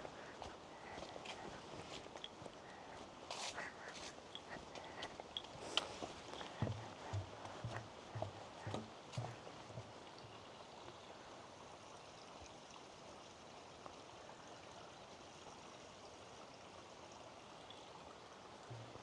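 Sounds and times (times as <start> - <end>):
soft footsteps on trail: 0.0 - 10.4
distant stream running water: 0.0 - 19.0.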